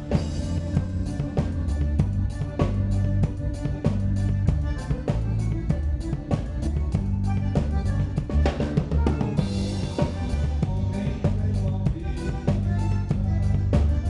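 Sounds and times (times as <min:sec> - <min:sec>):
drum kit beat: 0:00.0 - 0:14.0
sustained bass notes: 0:00.0 - 0:14.0.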